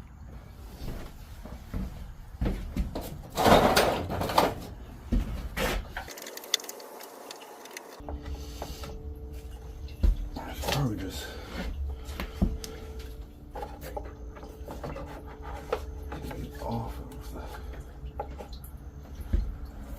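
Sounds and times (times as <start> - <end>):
hand tools clicking and knocking: 5.9 - 8.2.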